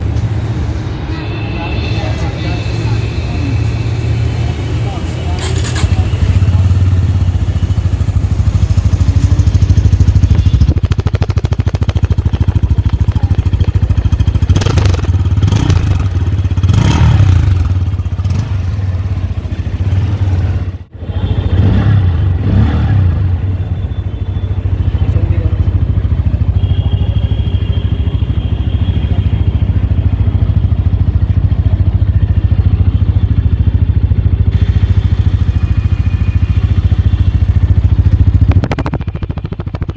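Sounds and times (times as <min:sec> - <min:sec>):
motorcycle engine idling: 0:00.0 - 0:39.9
throttle blips: 0:35.3 - 0:39.9.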